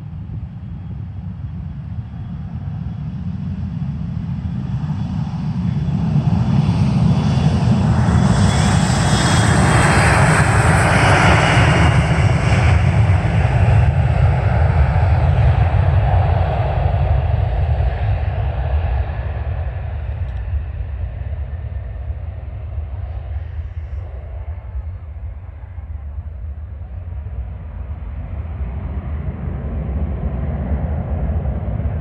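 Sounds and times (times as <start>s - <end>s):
airplane engines roaring: 0.0s - 32.0s.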